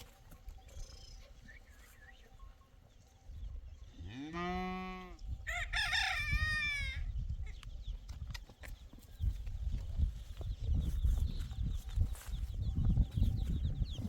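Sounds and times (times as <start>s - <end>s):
farm animal drawn-out call: 4.0s - 5.2s
rooster crowing: 5.5s - 7.0s.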